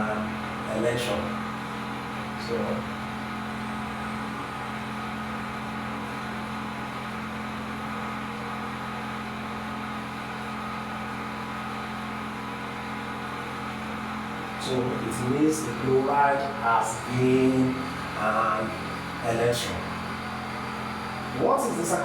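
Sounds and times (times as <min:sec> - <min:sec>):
steady machine hum: 0:00.0 - 0:22.0.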